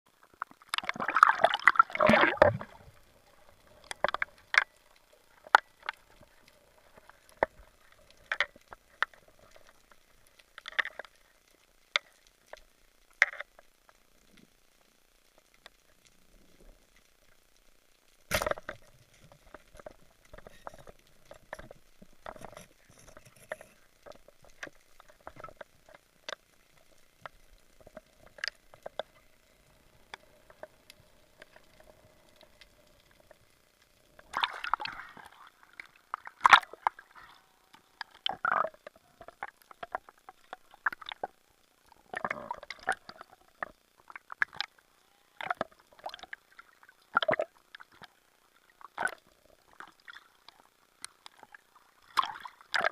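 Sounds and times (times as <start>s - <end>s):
faint steady hum: 0.1s - 52.9s
underwater clicks and gurgling: 0.1s - 52.9s
water sloshing: 34.2s - 37.6s.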